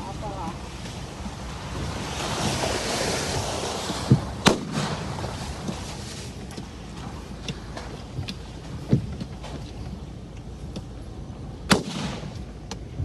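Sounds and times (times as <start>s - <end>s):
gas cannon thump and bang: 4.1s - 5.1s, 11.7s - 12.8s.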